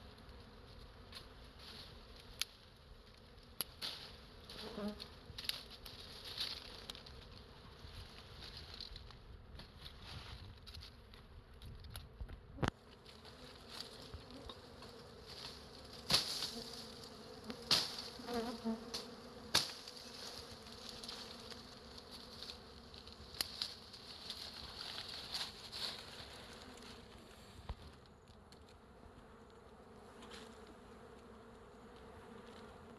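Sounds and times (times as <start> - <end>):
bees buzzing: 3.6 - 7.8, 12.6 - 32.9.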